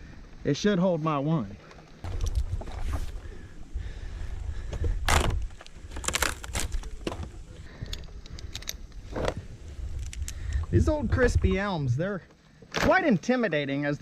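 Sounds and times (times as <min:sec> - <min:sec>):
climbing gear clinking and rattling: 0:02.0 - 0:03.0, 0:04.8 - 0:10.7
steady low rumble: 0:02.0 - 0:12.2
scraping against tree trunk: 0:04.6 - 0:07.5.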